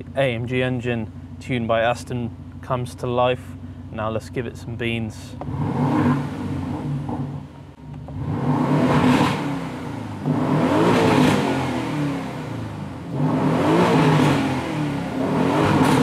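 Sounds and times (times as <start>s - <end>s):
car engine revving: 4.0s - 16.0s.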